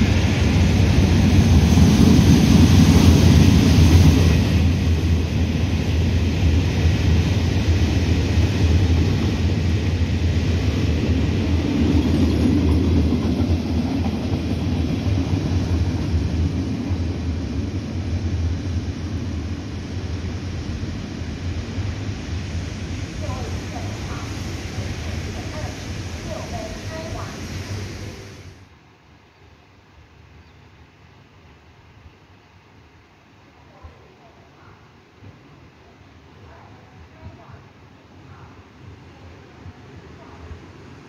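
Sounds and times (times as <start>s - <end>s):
freight train wheels rumbling on rail: 0.0s - 28.6s.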